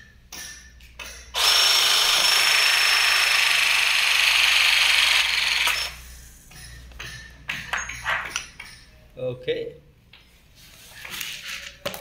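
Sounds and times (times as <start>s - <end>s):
pipe press tool motor: 1.4s - 6.0s.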